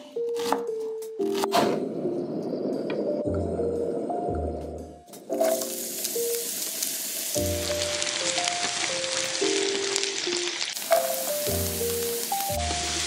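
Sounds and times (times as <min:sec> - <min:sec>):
shallots sizzling in oil: 0:05.3 - 0:13.0
chopsticks stirring: 0:10.8 - 0:11.5.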